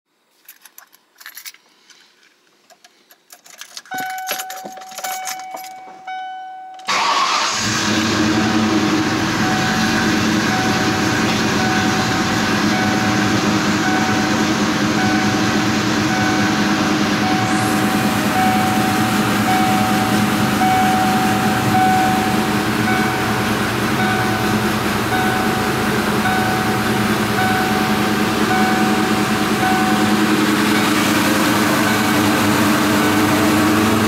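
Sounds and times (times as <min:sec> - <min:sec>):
keys jangling: 0:00.3 - 0:06.0
car engine starting and idling: 0:02.8 - 0:34.0
dashboard warning chime: 0:03.8 - 0:07.4, 0:08.4 - 0:34.0.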